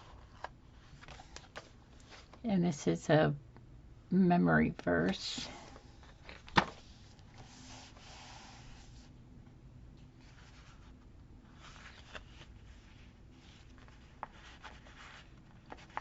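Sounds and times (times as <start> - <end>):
paper rustling: 10.2 - 16.0.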